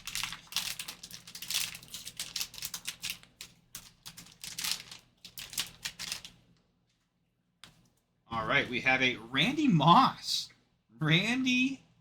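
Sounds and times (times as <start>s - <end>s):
card wrapper crinkling: 0.0s - 6.4s.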